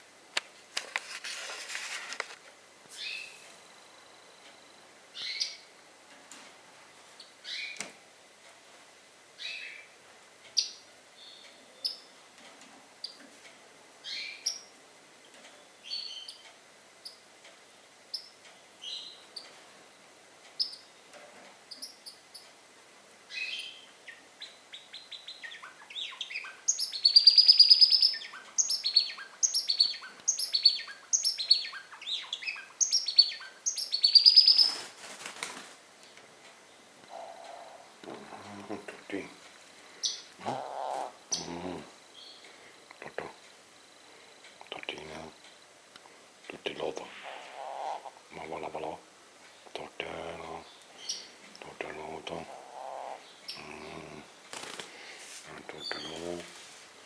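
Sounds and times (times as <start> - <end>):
pet birds chirping: 3.0 - 3.4, 5.1 - 5.7, 7.2 - 7.8, 9.4 - 12.2, 14.0 - 14.8, 15.4 - 17.3, 18.1 - 19.6, 20.5 - 21.0, 21.7 - 22.6, 23.3 - 34.9, 36.0 - 39.3, 39.9 - 42.5, 46.6 - 54.5, 55.6 - 56.4
bird trills: 23.3 - 34.8.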